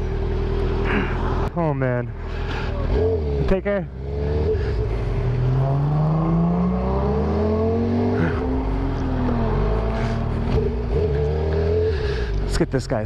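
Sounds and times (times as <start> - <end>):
motorcycle engine accelerating: 2.6 - 12.6.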